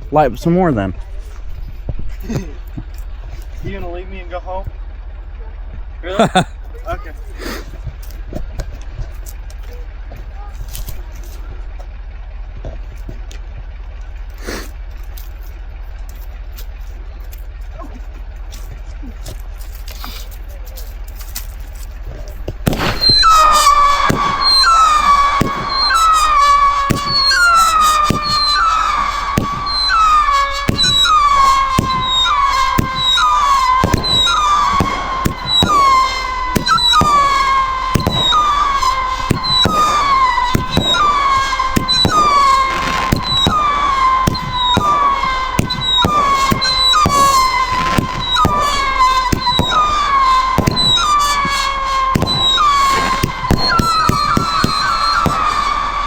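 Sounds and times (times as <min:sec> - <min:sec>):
firework launch pops: 0:07.4 - 0:12.0, 0:14.2 - 0:56.0
firework whistles: 0:14.3 - 0:17.8, 0:18.4 - 0:56.0.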